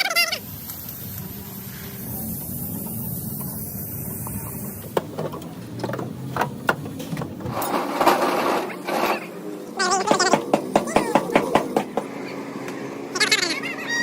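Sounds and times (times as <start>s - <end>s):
sharp knocks and clatter: 4.2s - 9.2s, 10.0s - 12.4s.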